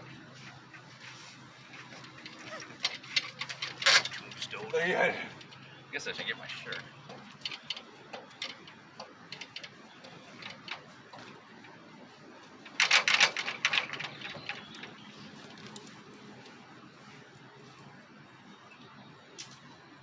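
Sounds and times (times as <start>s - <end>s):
rapid clattering: 12.6s - 15.7s.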